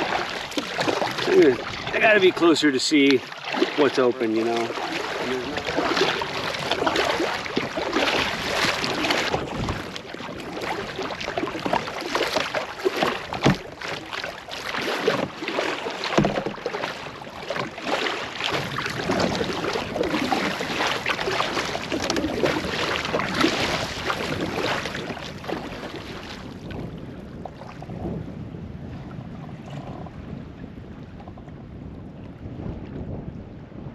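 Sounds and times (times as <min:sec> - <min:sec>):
paddle splashing water: 0:00.0 - 0:28.2
wind buffeting microphone: 0:00.0 - 0:33.9
knocks on canoe hull: 0:11.6 - 0:13.7, 0:16.0 - 0:17.8.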